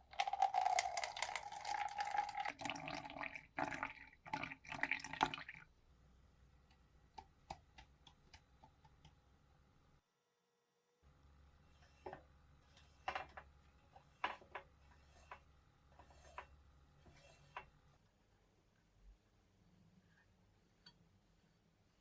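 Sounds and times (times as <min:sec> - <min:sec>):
faint clicks and light taps: 0:06.6 - 0:09.2.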